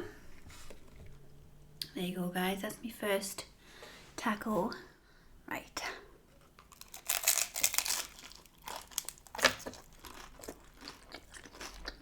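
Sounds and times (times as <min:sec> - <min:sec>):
hard taco shell crackling: 0:06.6 - 0:12.0.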